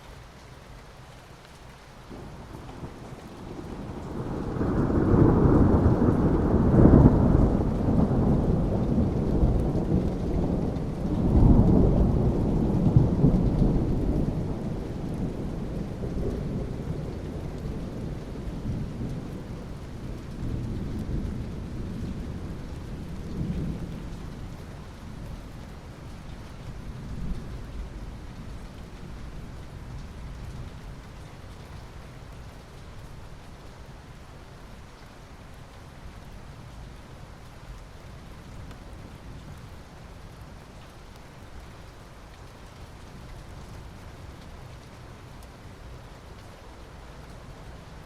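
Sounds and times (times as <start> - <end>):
steady rain: 0.0 - 48.0
thunder rolling: 2.1 - 19.5.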